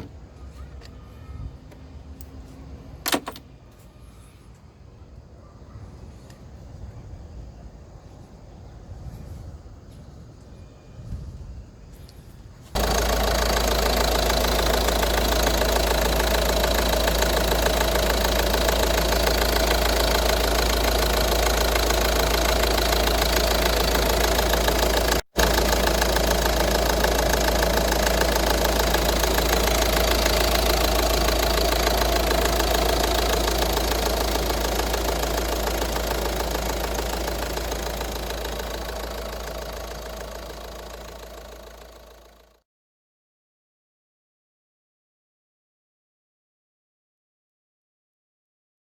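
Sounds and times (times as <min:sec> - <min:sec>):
car engine idling: 0:12.8 - 0:42.6.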